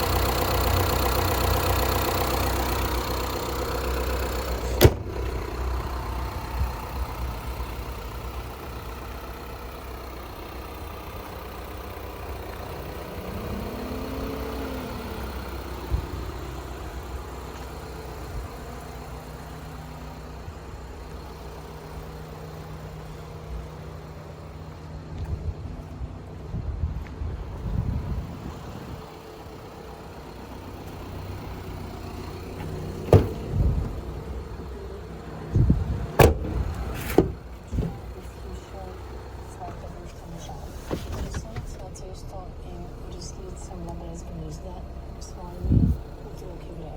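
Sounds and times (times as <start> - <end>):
van engine idling: 0.0 - 46.9.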